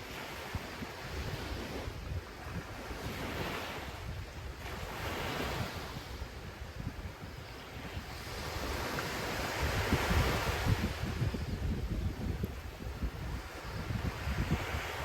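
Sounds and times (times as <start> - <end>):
wind buffeting microphone: 0.0 - 15.0
ocean surf breaking: 7.8 - 15.0.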